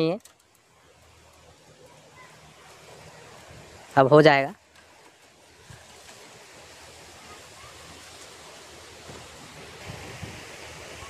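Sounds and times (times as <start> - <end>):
wind noise: 8.9 - 11.0.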